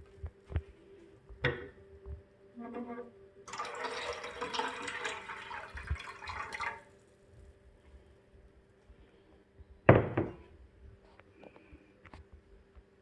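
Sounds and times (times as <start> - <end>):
liquid pouring into a saucepan: 3.5 - 7.0
loud knock: 9.9 - 10.4.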